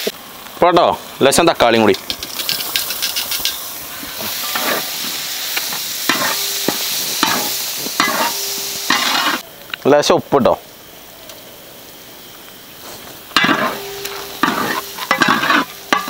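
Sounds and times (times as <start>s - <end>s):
chilli and tomatoes sizzling in oil: 0.0s - 10.0s, 10.6s - 16.0s
ladle scraping metal pot: 13.4s - 16.0s.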